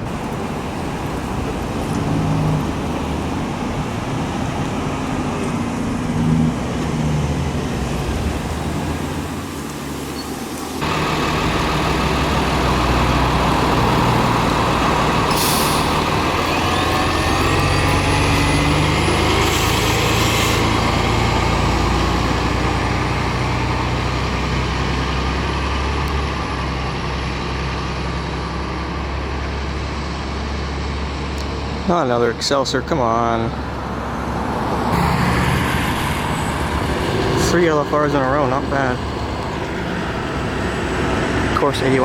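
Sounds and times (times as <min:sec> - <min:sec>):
diesel bus engine running: 0:00.0 - 0:42.0
air brakes hissing: 0:14.7 - 0:18.2.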